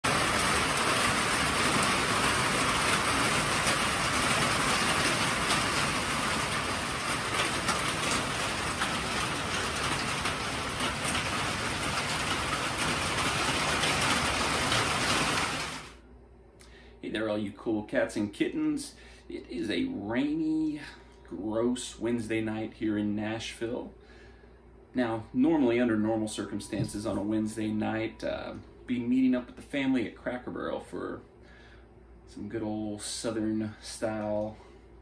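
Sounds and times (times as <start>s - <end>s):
rain on wooden deck and roof: 0.0s - 16.0s.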